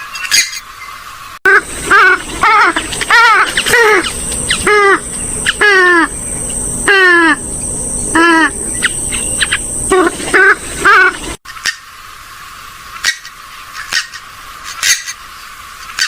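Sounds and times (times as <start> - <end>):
bird giving harsh calls: 1.5 - 11.8.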